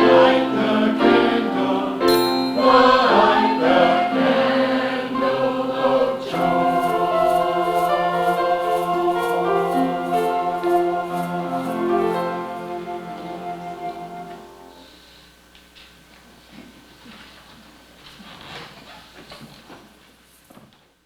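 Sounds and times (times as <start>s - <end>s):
choir singing: 0.0s - 14.8s.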